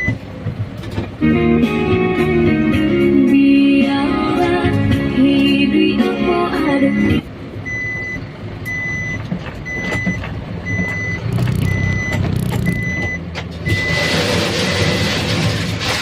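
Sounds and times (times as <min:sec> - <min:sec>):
truck reversing alarm beeping: 0:00.0 - 0:00.3, 0:06.6 - 0:14.5
diesel engine running: 0:00.0 - 0:16.0.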